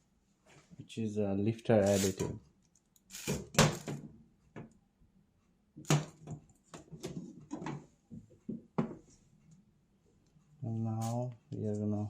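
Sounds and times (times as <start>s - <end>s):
items knocking and rustling on table: 3.3s - 4.7s, 5.8s - 9.1s.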